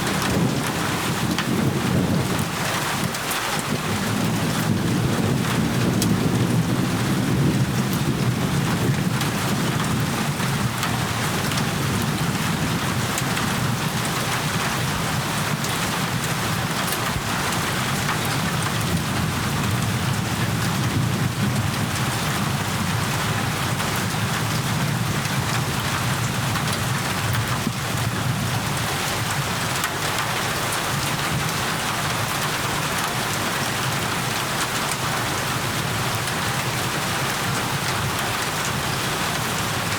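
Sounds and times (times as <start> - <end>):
low rumble: 0.0 - 2.5
heavy rainfall: 0.0 - 39.9.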